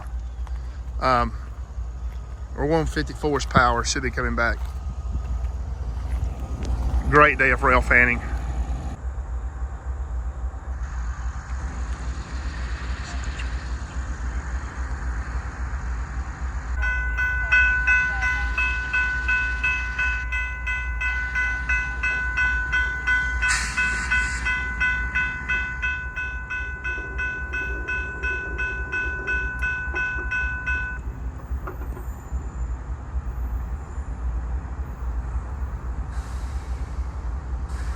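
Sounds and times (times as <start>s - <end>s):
low steady rumble: 0.0s - 35.6s
railroad crossing bell ringing: 6.0s - 9.0s, 16.8s - 34.0s.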